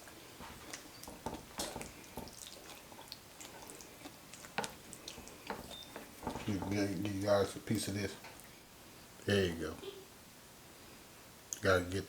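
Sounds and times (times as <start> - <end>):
spoon squishing thick beans: 0.0 - 8.7.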